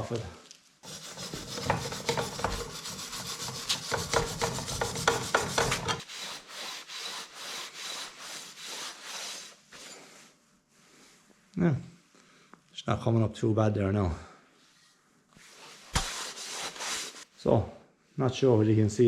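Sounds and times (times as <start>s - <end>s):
scraping on steel pipe: 0.8s - 6.1s.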